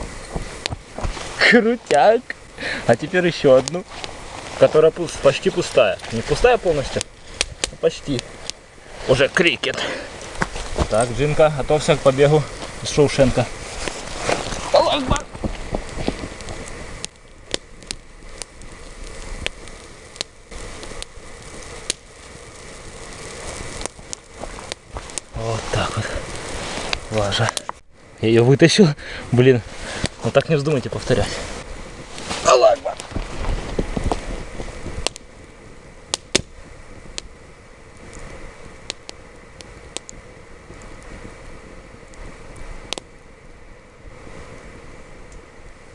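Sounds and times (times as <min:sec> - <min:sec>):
wind noise on microphone: 0:00.0 - 0:01.5, 0:10.2 - 0:17.1, 0:30.9 - 0:38.8
campfire crackling and popping: 0:00.0 - 0:45.9.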